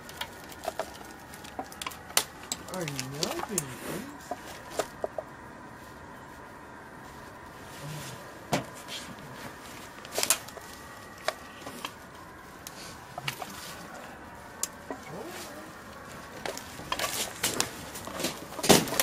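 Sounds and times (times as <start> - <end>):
wood and debris knocking: 0.0 - 3.6, 16.4 - 19.0.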